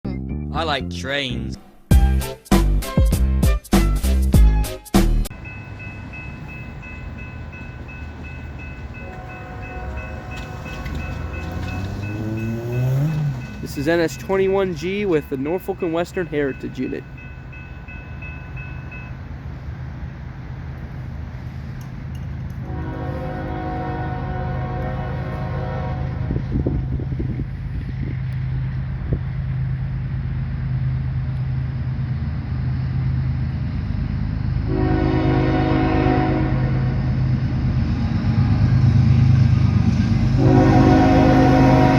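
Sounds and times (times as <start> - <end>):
locomotive engine rumble: 5.2 - 41.9
crossing bell ringing: 5.3 - 19.6, 22.1 - 27.0, 38.0 - 41.9
distant locomotive horn chord: 5.4 - 17.6, 22.6 - 27.4, 34.5 - 37.3, 37.9 - 41.9.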